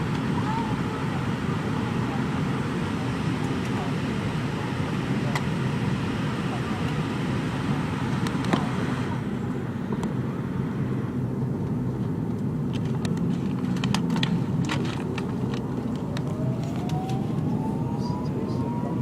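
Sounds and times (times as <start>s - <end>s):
airliner cabin rumble: 0.0s - 19.0s
rising whine: 12.8s - 19.0s.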